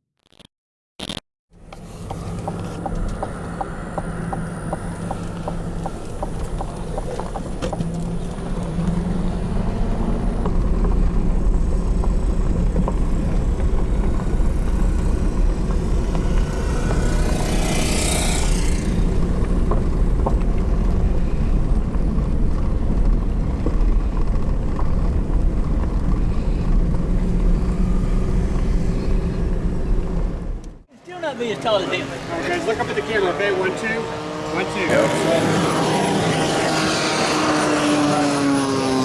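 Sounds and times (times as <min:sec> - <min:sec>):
model airplane engine droning: 0:01.6 - 0:39.0.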